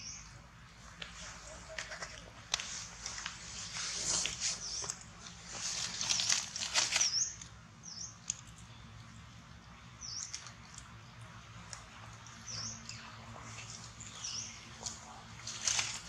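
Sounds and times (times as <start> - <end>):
faint low hum: 0.0 - 16.0
rustling and scraping: 0.8 - 7.5, 12.4 - 16.0
small bird chirping: 6.8 - 8.9, 9.9 - 10.9, 12.3 - 14.8.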